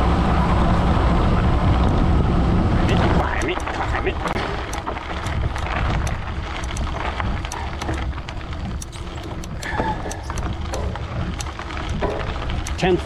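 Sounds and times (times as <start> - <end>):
bicycle tyre noise: 0.0 - 13.0
wind over microphone: 0.0 - 13.0
small ticks: 4.6 - 12.0, 12.6 - 12.9.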